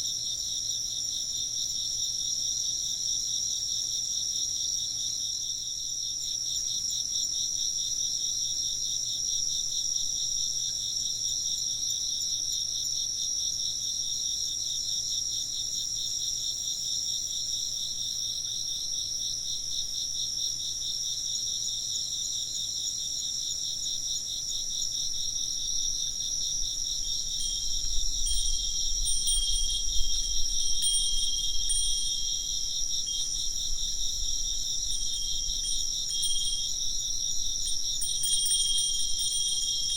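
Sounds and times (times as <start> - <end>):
insects trilling: 0.0 - 39.9
wind bell ringing: 27.2 - 39.9.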